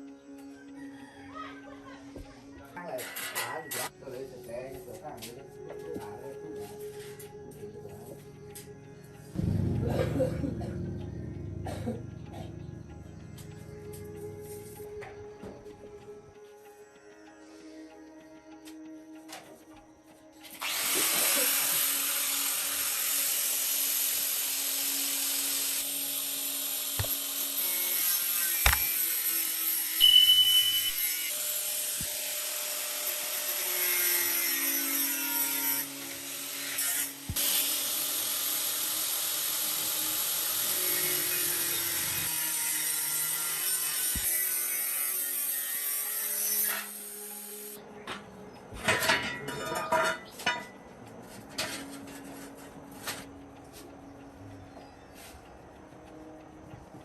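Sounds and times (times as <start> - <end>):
power tool hissing: 20.5 - 34.0, 35.6 - 47.8
high squeal: 29.9 - 31.5.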